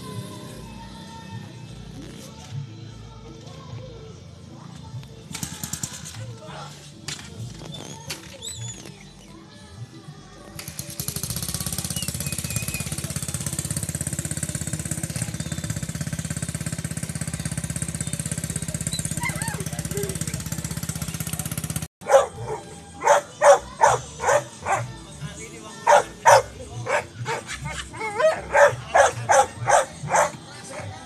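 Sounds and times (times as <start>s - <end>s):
two-stroke engine putter: 5.2s - 6.4s, 10.5s - 25.0s, 25.8s - 31.0s.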